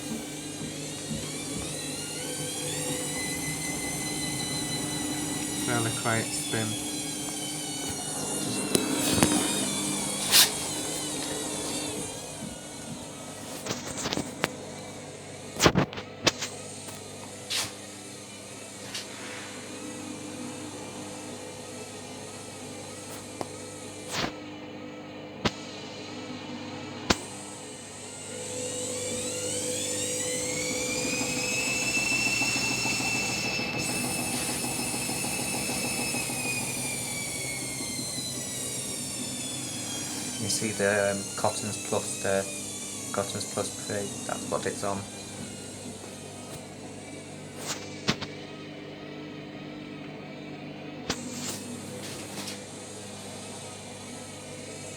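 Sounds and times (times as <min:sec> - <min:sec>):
steady hum: 0:00.0 - 0:24.4
washing machine spinning: 0:00.0 - 0:54.9.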